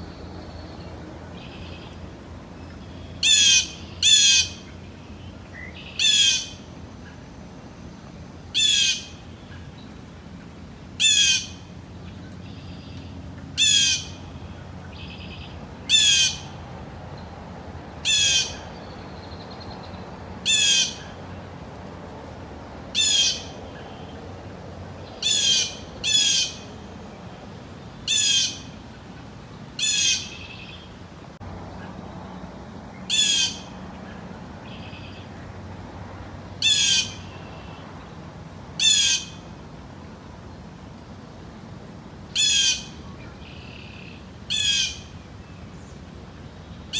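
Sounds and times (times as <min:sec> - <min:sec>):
jay squawking calls: 0:03.2 - 0:04.6, 0:11.0 - 0:11.6, 0:13.6 - 0:14.2, 0:15.9 - 0:16.5, 0:18.0 - 0:18.6, 0:20.5 - 0:21.0, 0:23.0 - 0:23.5, 0:25.2 - 0:26.6, 0:28.1 - 0:28.7, 0:29.8 - 0:30.4, 0:33.1 - 0:33.7, 0:36.6 - 0:37.3, 0:38.8 - 0:39.4, 0:42.4 - 0:43.0.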